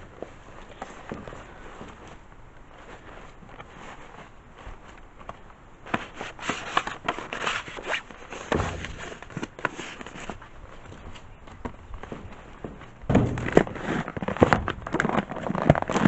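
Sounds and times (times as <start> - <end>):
crinkling and rustling: 0.0 - 16.0
dull thump: 8.5 - 9.5, 12.6 - 15.2.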